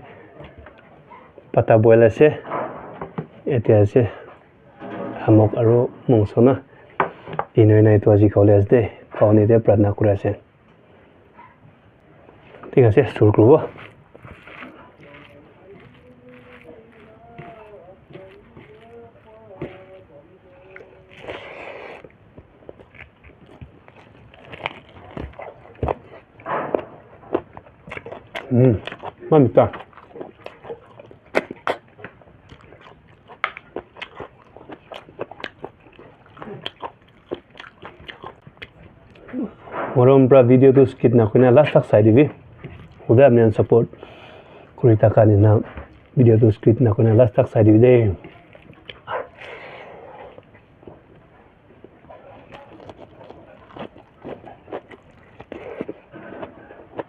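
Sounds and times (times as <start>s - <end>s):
person chewing meat: 11.4s - 57.0s
low voiced sound: 14.7s - 21.8s.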